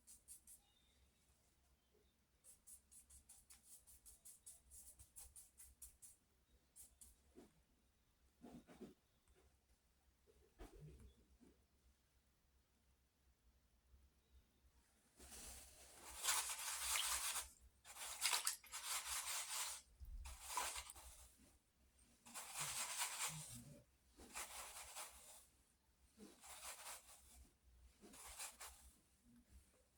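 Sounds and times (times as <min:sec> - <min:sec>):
pencil scratching on paper: 0:22.3 - 0:25.4.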